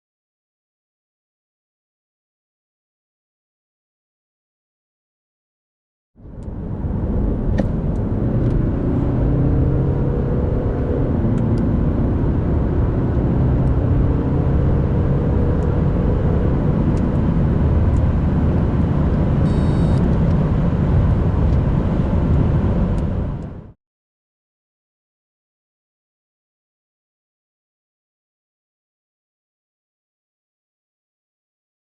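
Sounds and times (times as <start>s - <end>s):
diesel car engine accelerating: 6.2s - 23.8s.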